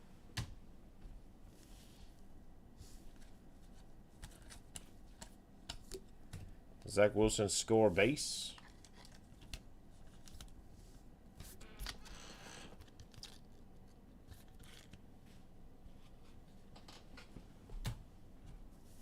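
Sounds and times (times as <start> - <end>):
cards clicking and sliding: 4.2 - 6.0.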